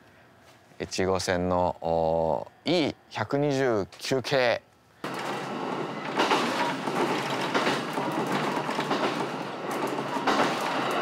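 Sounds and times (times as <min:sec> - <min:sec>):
train wheels on rail: 0:05.0 - 0:11.0.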